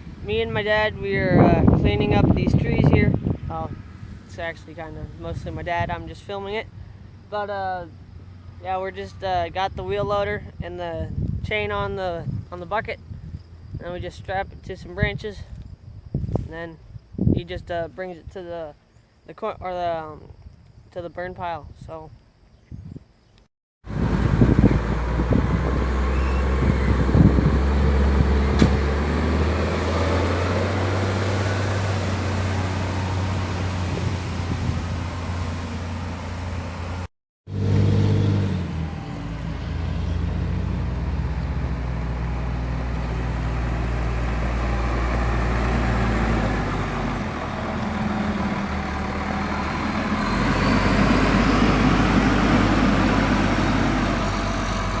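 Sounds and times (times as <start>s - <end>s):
diesel engine running: 23.9s - 55.0s.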